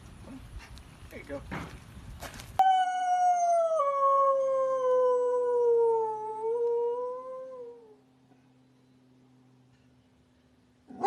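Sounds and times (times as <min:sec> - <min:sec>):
dog howling: 0:02.6 - 0:08.0.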